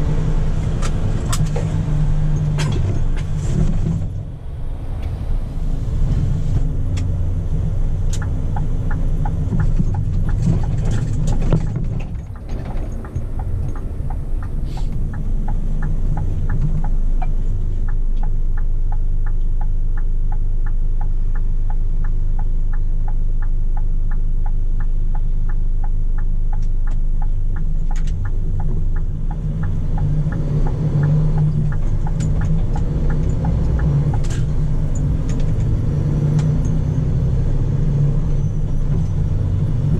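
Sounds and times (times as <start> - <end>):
truck diesel engine running: 0.0 - 22.6
regular ticking: 6.7 - 37.3.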